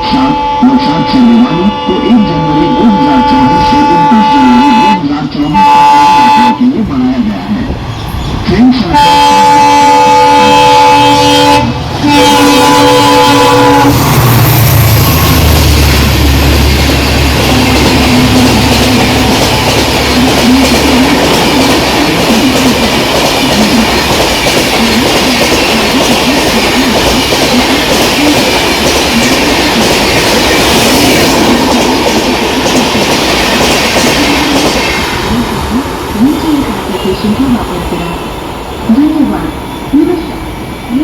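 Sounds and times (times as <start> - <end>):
train wheels clattering: 11.8 - 35.4.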